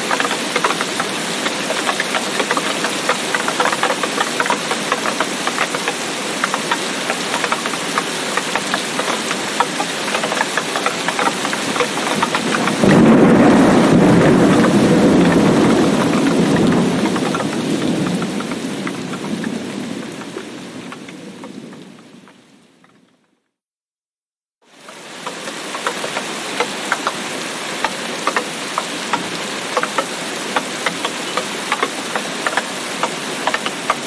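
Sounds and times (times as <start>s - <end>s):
heavy rain falling: 0.0s - 23.1s, 24.7s - 34.0s
deep rumble of thunder: 12.0s - 22.3s.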